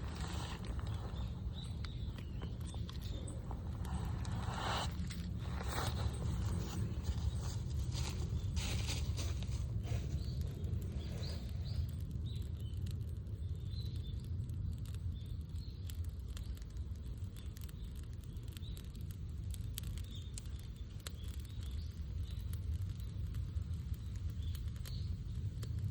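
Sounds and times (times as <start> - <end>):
low rumble: 0.0 - 16.2
wood fire crackling and popping: 0.0 - 25.9.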